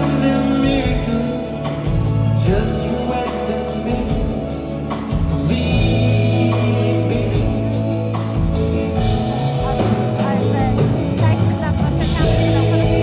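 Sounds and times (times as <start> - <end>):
band playing soft-rock ballad: 0.0 - 13.0.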